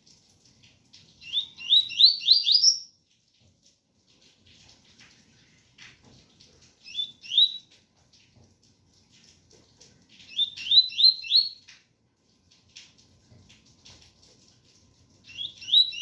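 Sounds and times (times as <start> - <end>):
bird singing rising whistled notes: 1.2 - 2.9, 6.9 - 7.6, 10.3 - 11.6, 15.3 - 16.0.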